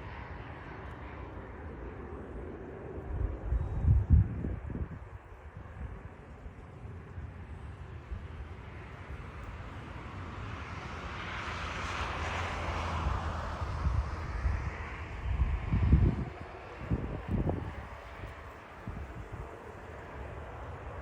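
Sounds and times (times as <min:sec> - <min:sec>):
jet airliner engines passing: 0:00.0 - 0:21.0
steady low rumble: 0:00.6 - 0:08.9, 0:13.6 - 0:21.0.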